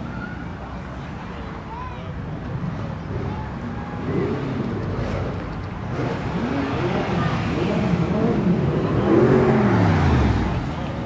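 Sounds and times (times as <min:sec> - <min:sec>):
car engine revving: 0:04.0 - 0:11.0.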